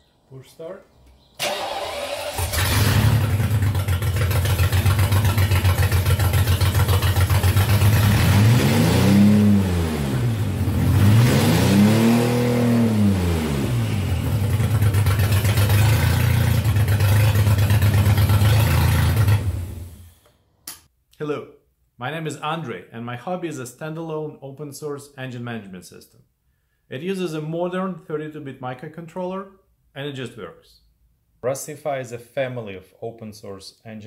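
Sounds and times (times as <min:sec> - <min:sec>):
engine starter cranking: 0:01.4 - 0:05.6
engine idling and revving: 0:02.0 - 0:20.1.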